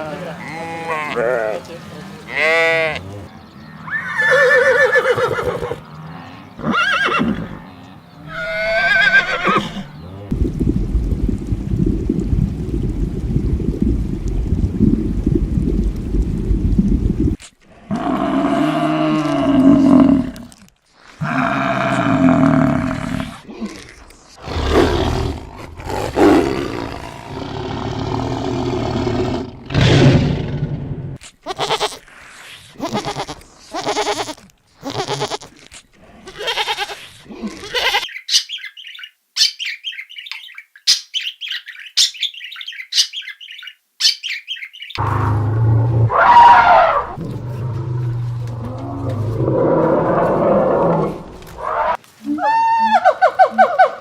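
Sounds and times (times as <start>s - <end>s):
horse whinnying: 3.9s - 5.8s, 6.6s - 7.6s, 8.3s - 9.9s
big cat roaring: 17.8s - 20.5s, 21.2s - 23.4s, 24.4s - 31.1s, 45.0s - 52.0s.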